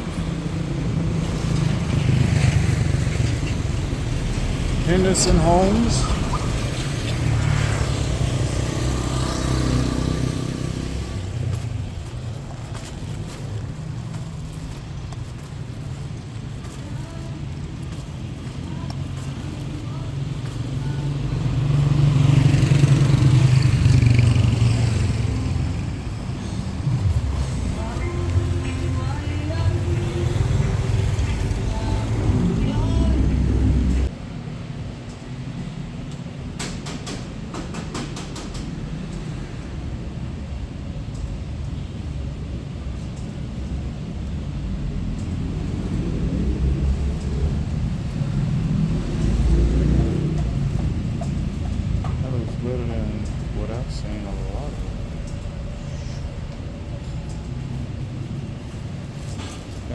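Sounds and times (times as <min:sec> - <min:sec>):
vehicle engine passing by: 0:00.0 - 0:12.4, 0:18.1 - 0:34.1, 0:44.4 - 0:59.9.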